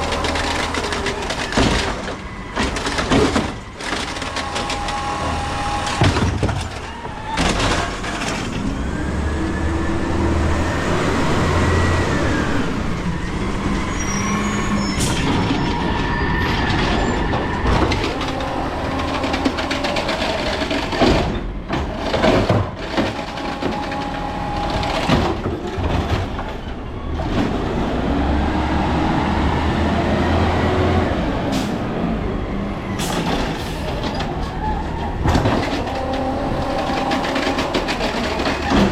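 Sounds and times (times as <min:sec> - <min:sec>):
cart banging against hopper: 0:00.0 - 0:08.6, 0:15.0 - 0:26.7, 0:33.0 - 0:38.9
hydraulic whine: 0:00.0 - 0:22.2
truck engine revving: 0:00.0 - 0:38.9.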